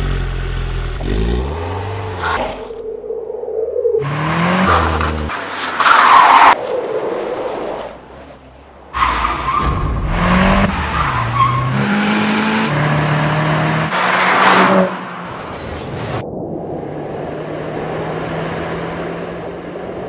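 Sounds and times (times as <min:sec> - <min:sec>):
car engine revving: 0:04.0 - 0:05.4, 0:10.0 - 0:15.7.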